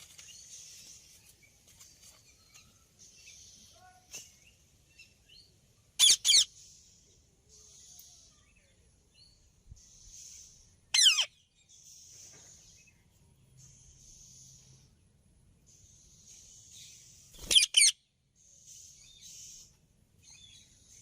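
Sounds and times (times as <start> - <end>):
parrot squawking: 6.0 - 6.5, 11.0 - 11.3, 17.5 - 17.9.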